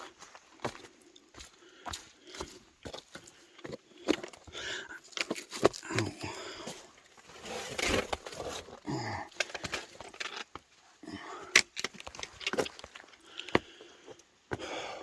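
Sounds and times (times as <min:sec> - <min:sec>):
hard breathing: 0:00.7 - 0:07.8, 0:11.0 - 0:11.7, 0:13.0 - 0:15.0
person grunting: 0:05.8 - 0:06.6, 0:08.8 - 0:09.4, 0:11.0 - 0:11.5.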